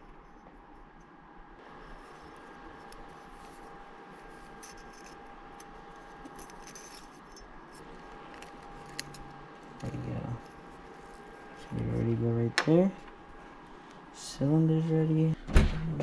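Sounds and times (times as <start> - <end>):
steady background hum: 0.0 - 16.0
metallic clinks and rattles: 4.6 - 7.9.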